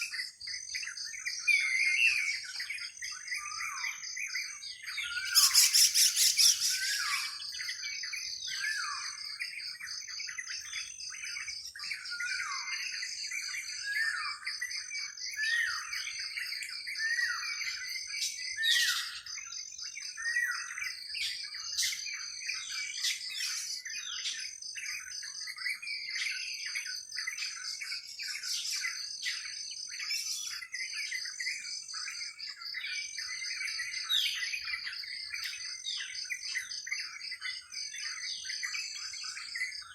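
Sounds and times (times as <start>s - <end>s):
birds chirping in chorus: 0.0s - 39.9s.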